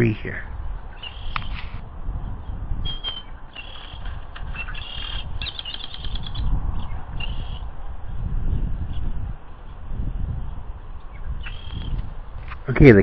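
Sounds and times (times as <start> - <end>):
small birds chirping: 0.6 - 1.7, 2.4 - 12.2.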